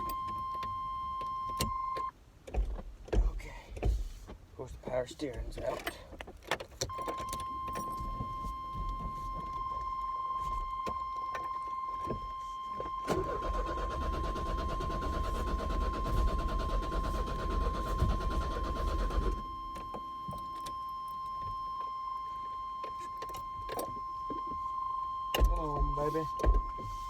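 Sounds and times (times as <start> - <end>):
starter cranking engine: 13.1 - 19.4.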